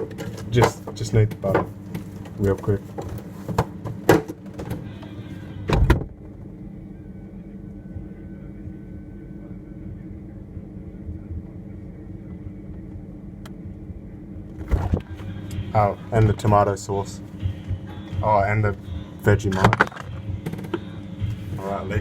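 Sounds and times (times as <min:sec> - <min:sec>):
bottles rattling on fridge shelves: 0:00.0 - 0:04.9
fridge hum: 0:00.0 - 0:22.0
fridge door thudding shut: 0:05.7 - 0:06.2.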